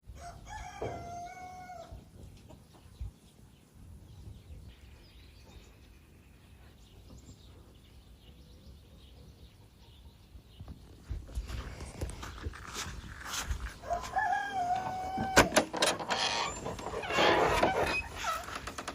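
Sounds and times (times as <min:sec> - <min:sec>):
faint chicken clucking: 0:00.1 - 0:12.8, 0:13.5 - 0:15.4
rooster crowing: 0:00.2 - 0:01.9, 0:13.8 - 0:15.5.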